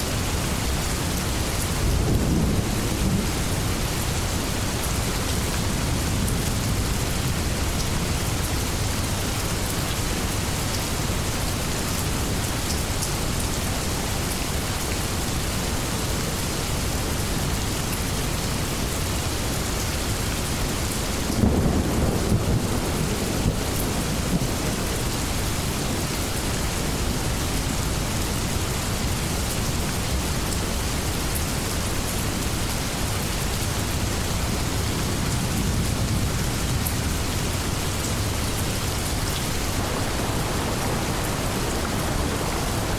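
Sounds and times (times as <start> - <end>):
heavy rain: 0.0 - 42.9
thunder rumble: 1.7 - 5.2, 21.2 - 26.1, 39.5 - 42.9.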